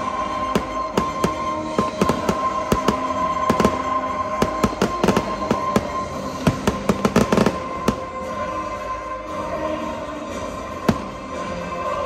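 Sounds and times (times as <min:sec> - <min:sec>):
fireworks bangs: 0:00.5 - 0:08.2.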